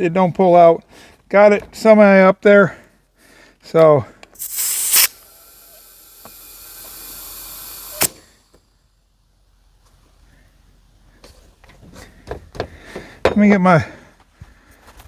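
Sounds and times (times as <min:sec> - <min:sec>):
compressed air hissing: 0:04.4 - 0:13.3.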